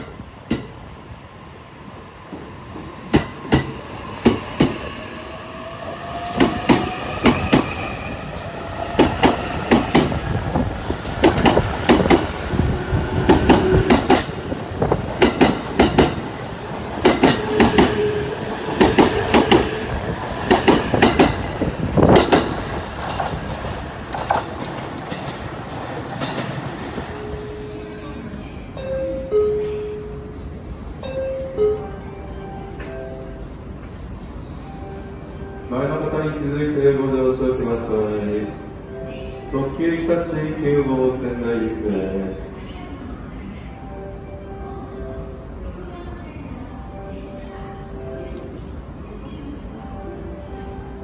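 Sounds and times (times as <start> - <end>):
train wheels clacking on rail joints: 10.8 - 12.4, 13.2 - 27.0.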